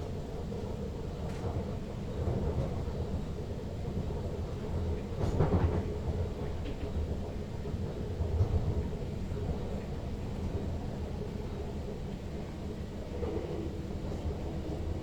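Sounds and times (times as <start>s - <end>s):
train clatter: 0.0s - 12.2s
train running on track: 0.0s - 15.0s.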